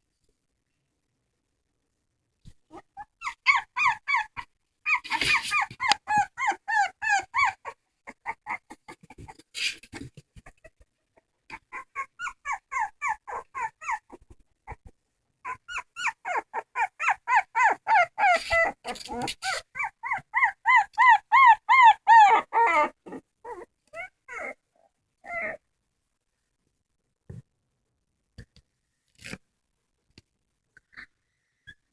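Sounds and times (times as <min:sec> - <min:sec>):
dog whining: 0:02.7 - 0:08.8, 0:11.5 - 0:25.6.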